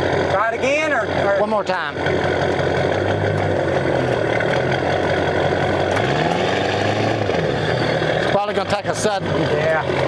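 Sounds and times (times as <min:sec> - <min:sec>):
vehicle engine revving under load: 0:02.0 - 0:10.0.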